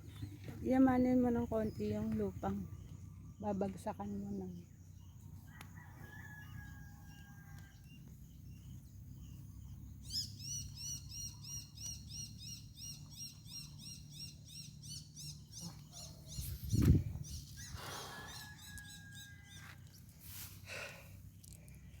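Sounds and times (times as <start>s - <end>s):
bird chirping: 6.4s - 19.8s.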